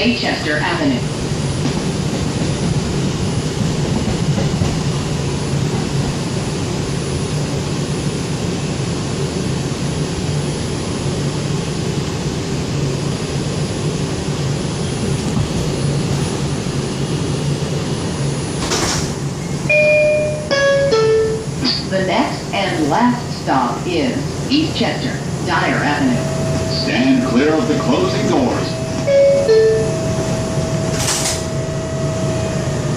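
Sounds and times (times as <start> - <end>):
subway train drone: 0.0 - 32.9.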